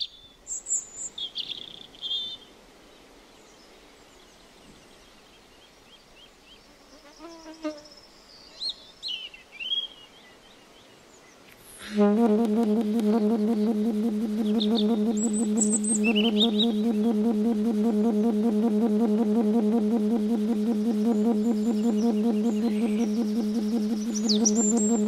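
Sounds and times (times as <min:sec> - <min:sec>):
birds chirping: 0:20.7 - 0:25.0.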